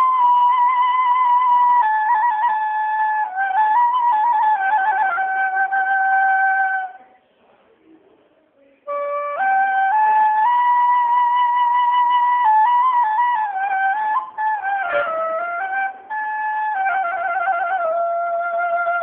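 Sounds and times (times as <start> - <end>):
slow flute melody: 0.0 - 7.0, 8.9 - 19.0.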